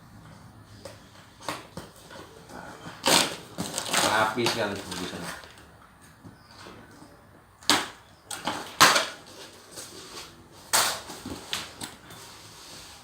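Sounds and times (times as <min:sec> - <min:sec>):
packaging crinkling and rustling: 0:01.5 - 0:05.7.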